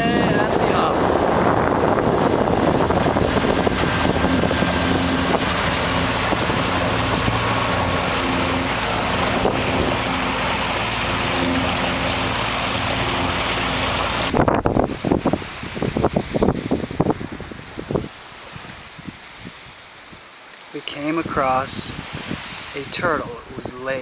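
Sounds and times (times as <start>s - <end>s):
boat engine running: 0.0s - 16.4s
wind and water rushing: 0.0s - 24.0s.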